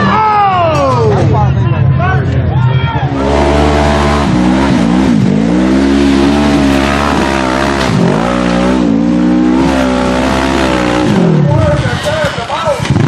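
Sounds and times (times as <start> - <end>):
off-road engine revving: 3.0 - 13.0.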